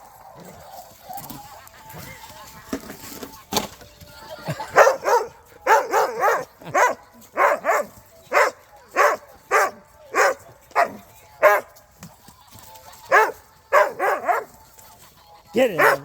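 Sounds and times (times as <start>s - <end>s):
dog barking: 4.6s - 11.8s, 13.1s - 14.6s, 15.6s - 16.0s.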